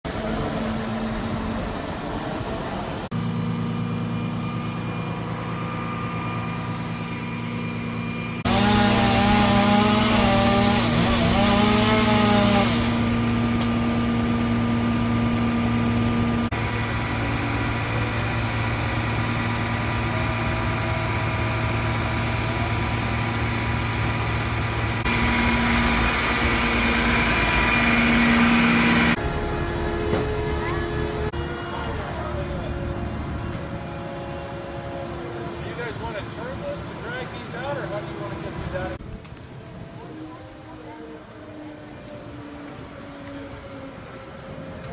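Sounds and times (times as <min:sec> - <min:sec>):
large engine running: 0:00.0 - 0:40.3
chainsaw cutting: 0:06.3 - 0:29.2.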